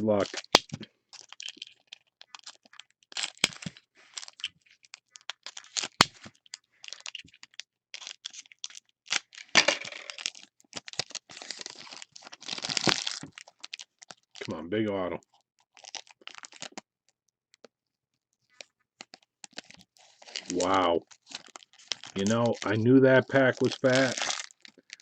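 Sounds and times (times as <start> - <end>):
foil packs crinkling: 0.1 - 14.6, 15.6 - 16.8, 18.5 - 25.0.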